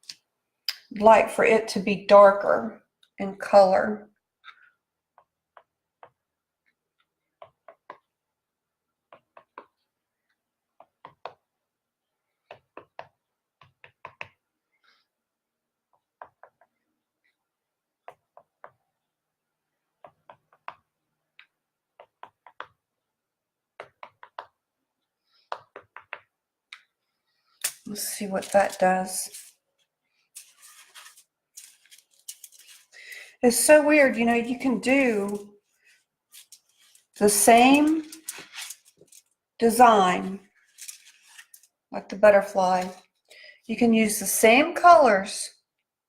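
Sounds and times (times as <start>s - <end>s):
small objects clicking and tapping: 30.4s - 33.3s, 36.3s - 39.3s, 40.7s - 41.7s.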